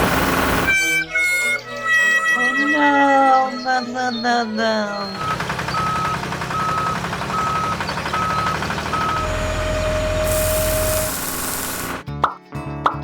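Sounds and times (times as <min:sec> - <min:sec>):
heavy vehicle engine running: 0:00.0 - 0:00.8, 0:03.7 - 0:12.0
reversing alarm beeping: 0:02.7 - 0:12.0
hiss of air: 0:10.2 - 0:12.0.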